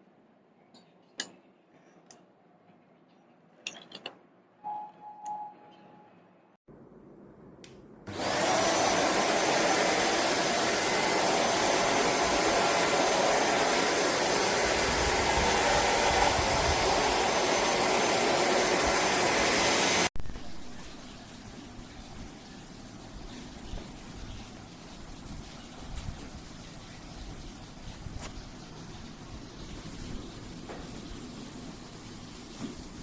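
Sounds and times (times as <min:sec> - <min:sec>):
vacuum cleaner running: 0:08.1 - 0:20.2.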